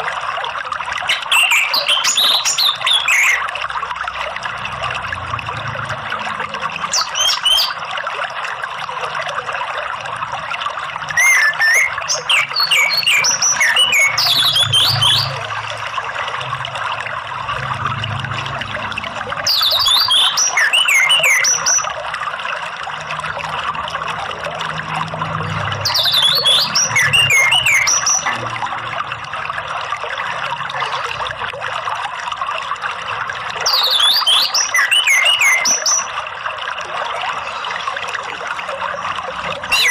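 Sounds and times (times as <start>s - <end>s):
running water: 0.0s - 39.9s
thrush whistling song: 1.1s - 3.5s, 6.9s - 7.8s, 11.0s - 15.4s, 19.4s - 22.0s, 25.8s - 28.4s, 33.6s - 36.2s, 39.7s - 39.9s.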